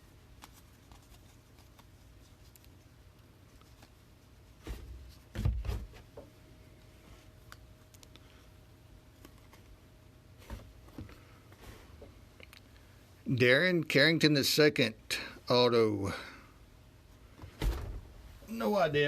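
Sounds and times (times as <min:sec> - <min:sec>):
trading cards rustling: 0:00.3 - 0:02.9.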